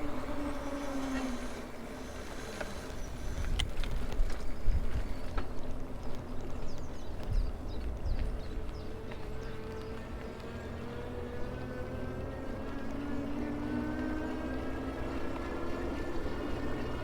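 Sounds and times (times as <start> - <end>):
electric motor whining: 0.0 - 4.0
wind on microphone: 3.0 - 5.4.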